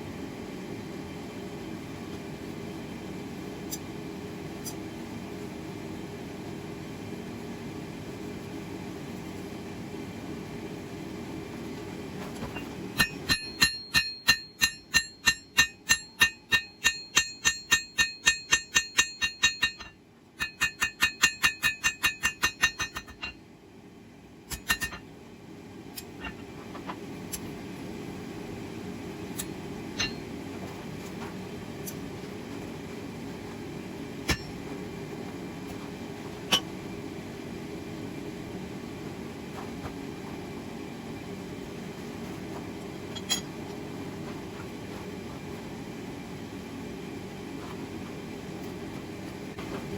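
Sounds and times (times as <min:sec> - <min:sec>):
hammer striking steel on anvil: 0:12.6 - 0:23.4, 0:24.5 - 0:25.0, 0:29.4 - 0:30.3, 0:34.3 - 0:34.6, 0:36.5 - 0:36.7.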